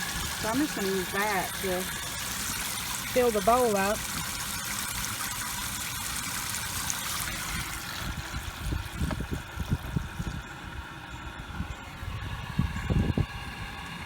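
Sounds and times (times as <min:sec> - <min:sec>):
water running into a tub: 0:00.0 - 0:10.8.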